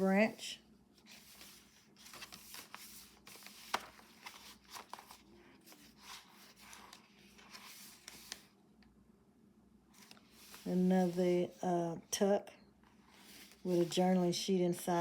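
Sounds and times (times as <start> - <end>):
paper and card rustling: 1.0 - 8.6, 9.9 - 11.6, 12.9 - 15.0.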